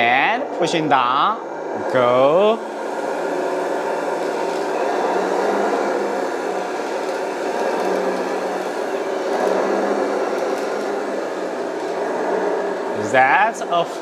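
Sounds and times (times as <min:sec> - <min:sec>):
toy bulldozer whirring: 0:03.0 - 0:12.0.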